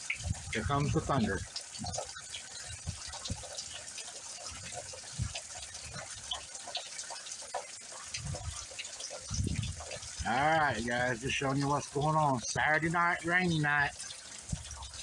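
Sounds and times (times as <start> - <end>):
heavy rain falling: 8.7 - 14.7.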